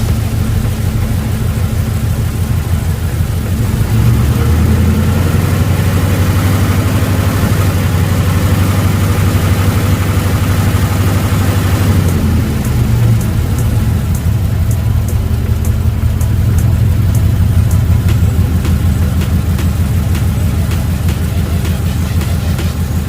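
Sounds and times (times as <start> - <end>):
pickup truck engine revving: 0.0 - 23.0
faint sharp high ticks: 12.0 - 22.7.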